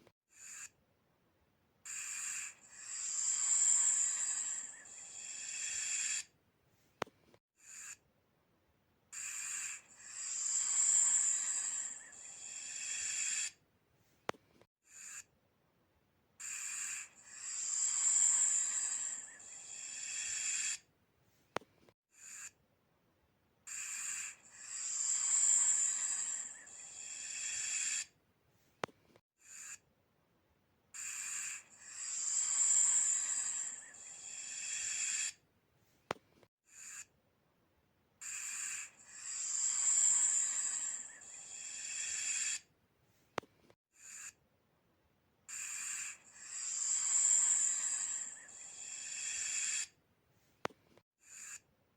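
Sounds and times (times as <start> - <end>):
snake hissing: 1.9 - 6.3, 9.2 - 13.6, 16.4 - 20.8, 23.7 - 28.1, 31.0 - 35.4, 38.3 - 42.6, 45.6 - 49.9.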